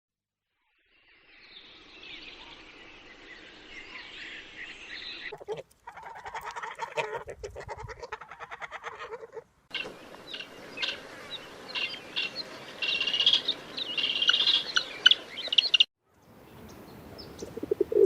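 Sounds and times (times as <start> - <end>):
rapid rhythmic bird calls: 7.8 - 15.9
birds singing: 9.7 - 18.0.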